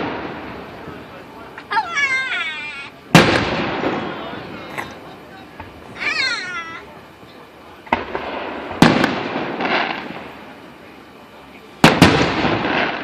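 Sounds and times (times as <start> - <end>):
fireworks bangs with rumbling echo: 0.0 - 13.0.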